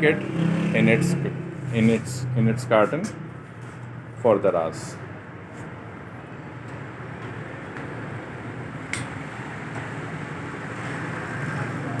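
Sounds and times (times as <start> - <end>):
steady background hum and hiss: 2.7 - 12.0.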